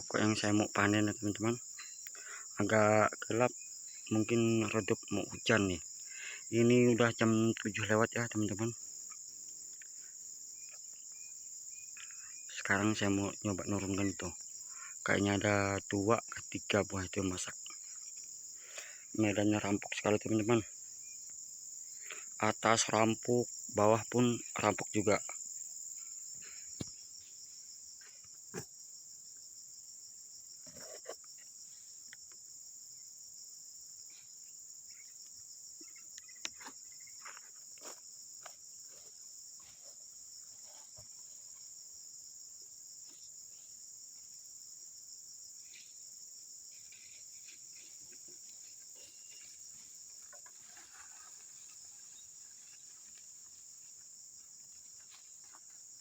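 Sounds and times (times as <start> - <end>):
crickets chirping: 0.0 - 56.0
rustles: 45.6 - 56.0.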